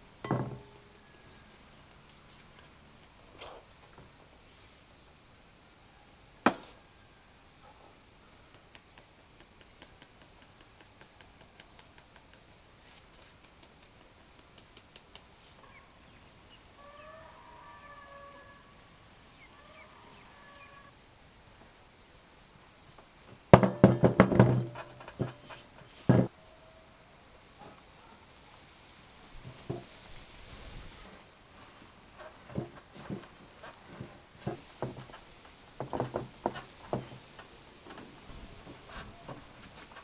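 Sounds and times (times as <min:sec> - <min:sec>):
knocks and thumps: 0:00.1 - 0:00.9, 0:06.5 - 0:06.8, 0:23.3 - 0:26.3, 0:29.4 - 0:30.0, 0:31.8 - 0:40.0.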